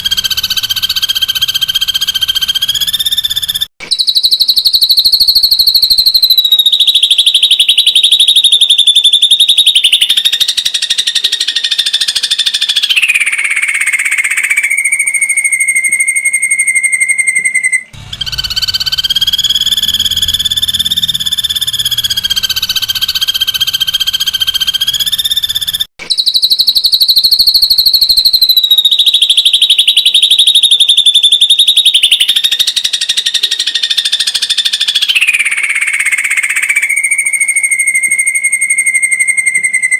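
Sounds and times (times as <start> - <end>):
bird trilling: 0.0 - 39.9
low hum: 18.0 - 25.8.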